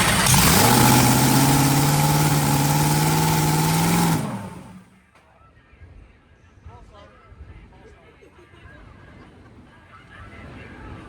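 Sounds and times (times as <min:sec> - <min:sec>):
dragster engine running: 0:00.0 - 0:04.9.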